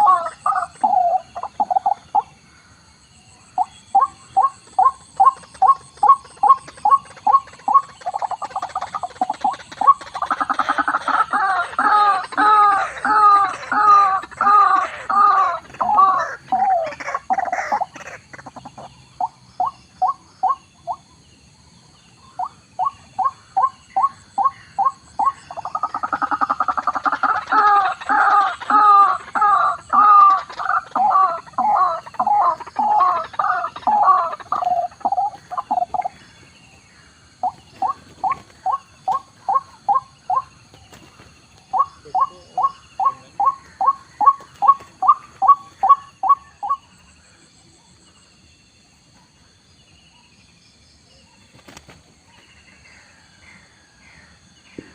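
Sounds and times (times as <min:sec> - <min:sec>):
waterhen calling: 0:00.0 - 0:02.3, 0:03.6 - 0:21.0, 0:22.4 - 0:36.2, 0:37.4 - 0:47.0.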